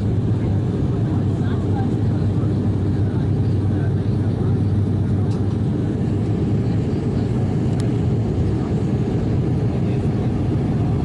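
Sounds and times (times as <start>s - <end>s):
turboprop cabin drone: 0.0s - 11.0s
faint click: 7.7s - 7.9s.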